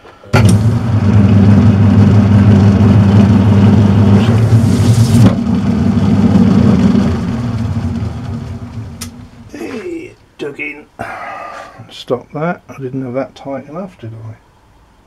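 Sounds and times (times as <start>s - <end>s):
metal lathe humming: 0.4s - 9.6s
harsh metal cutting noise: 0.4s - 10.0s.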